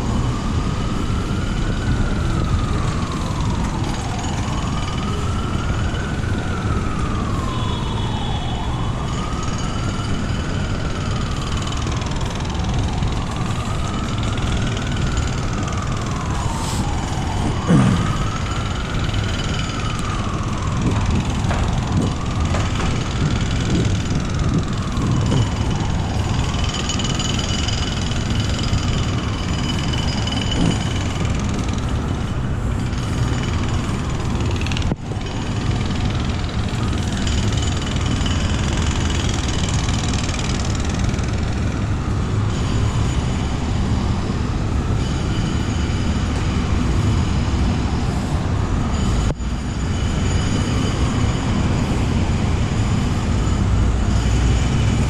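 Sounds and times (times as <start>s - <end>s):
heavy city traffic rumble: 0.0s - 55.0s
wailing tone: 12.6s - 27.2s.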